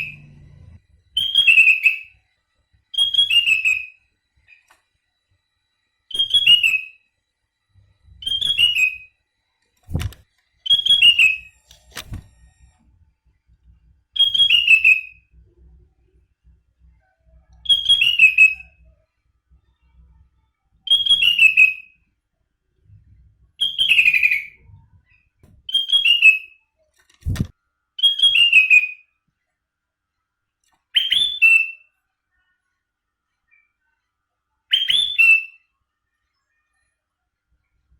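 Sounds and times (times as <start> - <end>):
bird whistled song: 1.1 - 2.2, 2.9 - 4.0, 6.1 - 7.1, 8.1 - 9.2, 10.6 - 11.6, 14.2 - 15.3, 17.6 - 18.9, 20.9 - 22.0, 23.6 - 24.8, 25.7 - 26.6, 28.0 - 29.2, 30.9 - 31.9, 34.7 - 35.7.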